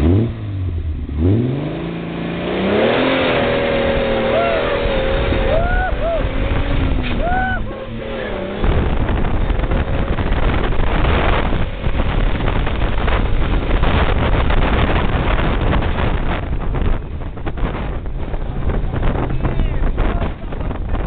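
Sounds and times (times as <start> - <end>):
car engine rumbling: 0.0 - 21.0
wind buffeting microphone: 3.0 - 21.0.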